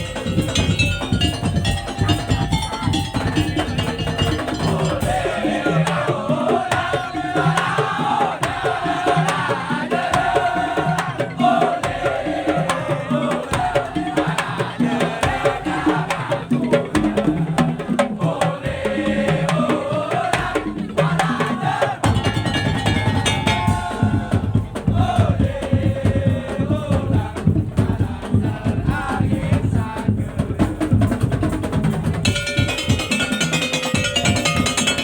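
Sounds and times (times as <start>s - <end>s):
wooden slit drums beating: 0.0s - 35.0s
wavering melody line: 22.0s - 24.2s, 32.3s - 35.0s.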